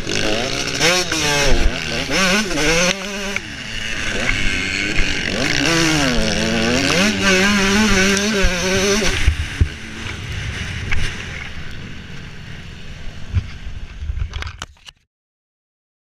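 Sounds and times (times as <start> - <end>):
motocross bike engine: 0.0 - 14.7
rumbling wind noise: 3.5 - 14.7.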